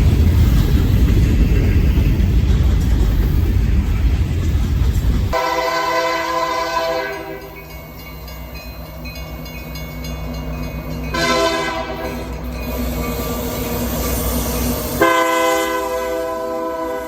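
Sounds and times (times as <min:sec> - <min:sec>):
low locomotive rumble: 0:00.0 - 0:17.0
locomotive air horn blast: 0:05.4 - 0:07.6, 0:11.1 - 0:12.3, 0:15.0 - 0:17.0.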